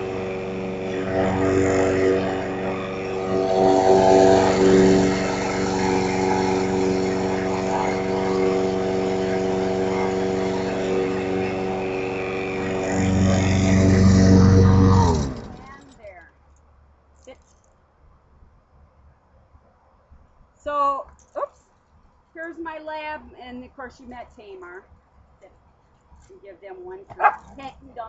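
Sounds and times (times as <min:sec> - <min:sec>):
lawn mower engine running: 0:00.0 - 0:16.2.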